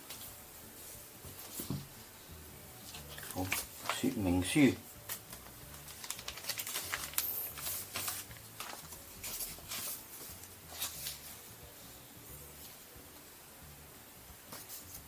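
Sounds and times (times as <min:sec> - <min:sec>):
paper and plastic rustling: 0:01.3 - 0:01.9, 0:02.8 - 0:11.5.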